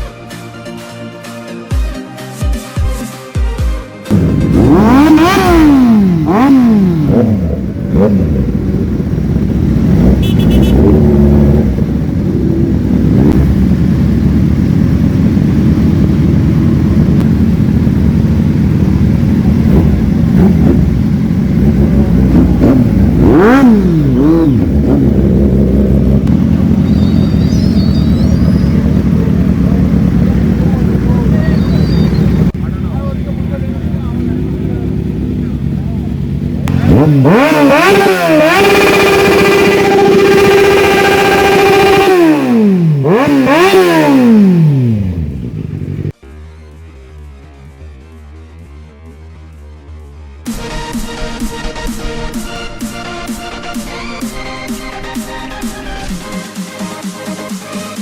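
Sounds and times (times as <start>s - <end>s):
superbike engine revving: 4.1s - 58.0s.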